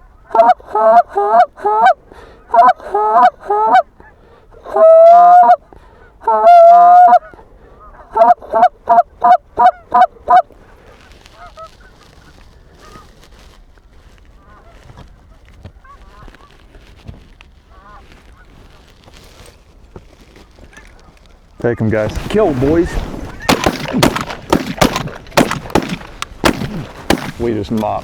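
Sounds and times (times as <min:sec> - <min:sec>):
goose call clucks and honks: 0:00.0 - 0:10.5
distant geese honking: 0:04.8 - 0:13.2, 0:17.7 - 0:18.9, 0:22.1 - 0:28.0.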